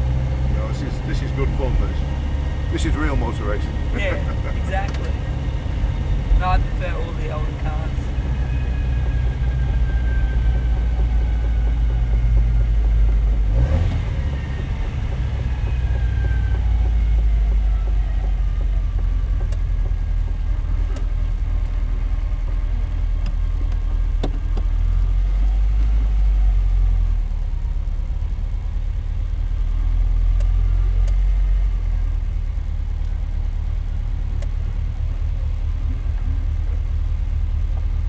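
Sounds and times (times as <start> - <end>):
car engine low rumble: 0.0 - 38.0
sharp clicks: 30.2 - 31.4.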